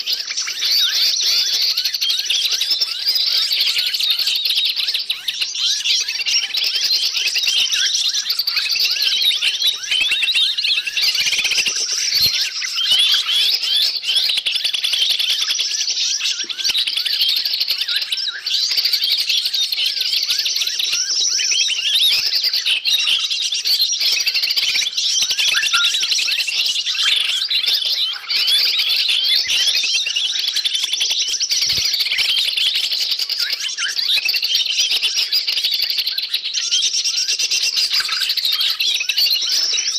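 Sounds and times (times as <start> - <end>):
small birds chattering and twittering: 0.0 - 39.9.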